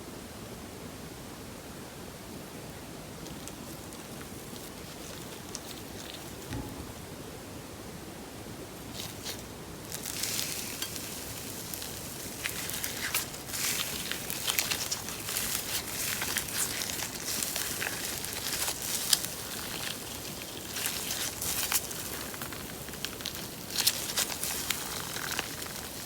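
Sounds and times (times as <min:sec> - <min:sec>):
slime squeezed by hand crackling: 0:09.0 - 0:26.0.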